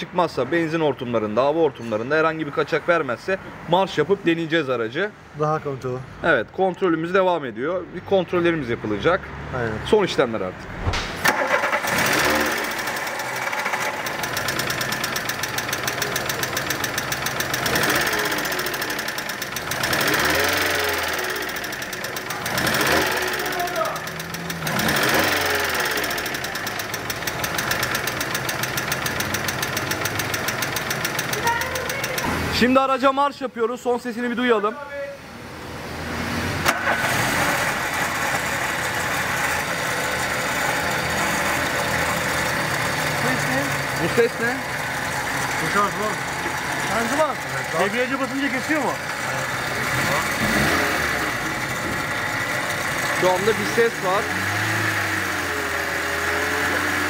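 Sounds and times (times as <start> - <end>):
car engine running: 10.6 - 32.5, 36.8 - 57.0
sharp knock: 10.7 - 11.4
fast ticking engine knock: 11.9 - 32.3
gearbox running noise: 13.0 - 32.3.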